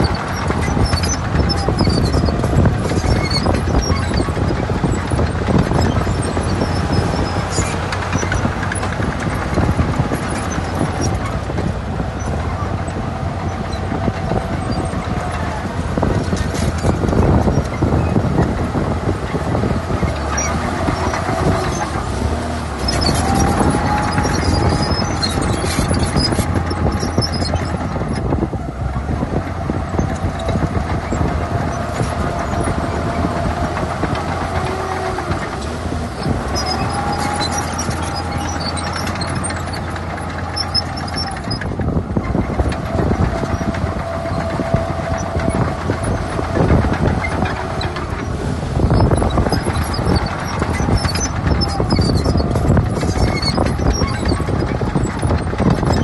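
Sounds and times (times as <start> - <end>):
diesel engine running: 0.0 - 56.0
high squeal: 22.8 - 28.2, 48.9 - 56.0.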